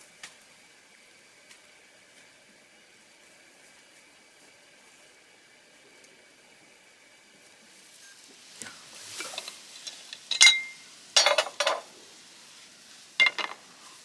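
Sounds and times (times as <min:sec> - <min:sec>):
objects knocking and clattering: 0:09.2 - 0:11.9, 0:13.2 - 0:13.7.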